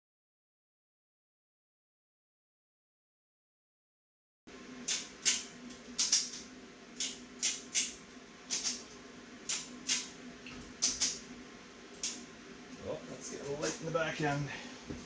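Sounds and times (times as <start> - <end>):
ratchet strap clicks: 4.9 - 6.4, 7.0 - 8.8, 10.8 - 11.2.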